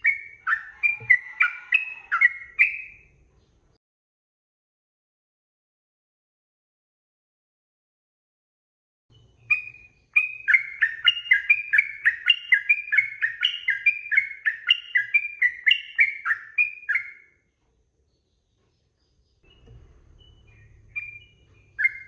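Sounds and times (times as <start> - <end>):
bird singing: 0.0 - 3.8, 9.1 - 22.0.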